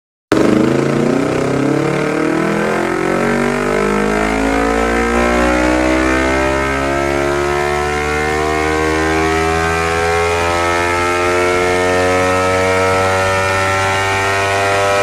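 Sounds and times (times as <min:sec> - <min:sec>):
motorcycle engine revving: 0:00.3 - 0:15.0.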